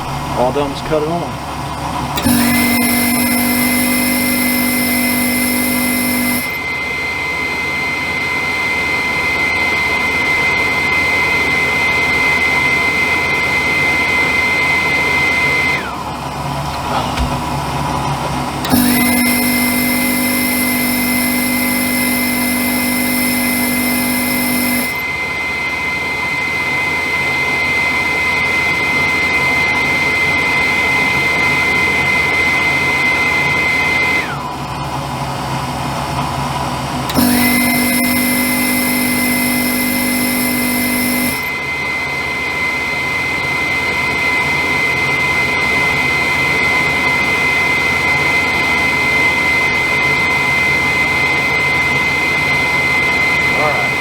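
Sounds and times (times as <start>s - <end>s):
lower hum: 0.0s - 6.6s
furnace motor whine: 0.0s - 54.0s.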